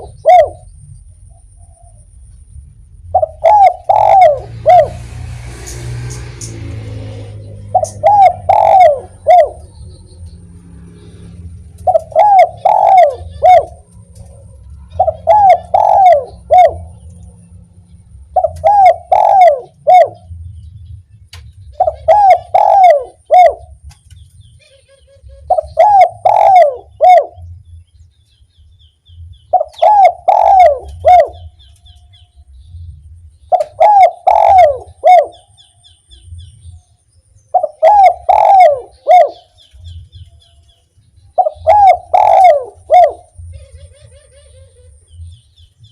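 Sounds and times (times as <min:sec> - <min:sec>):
dove cooing: 0:00.0 - 0:00.8, 0:03.1 - 0:09.9, 0:10.9 - 0:17.3, 0:18.3 - 0:20.4, 0:21.7 - 0:23.8, 0:25.3 - 0:27.5, 0:29.5 - 0:31.8, 0:33.4 - 0:35.6, 0:37.5 - 0:39.9, 0:41.3 - 0:45.4.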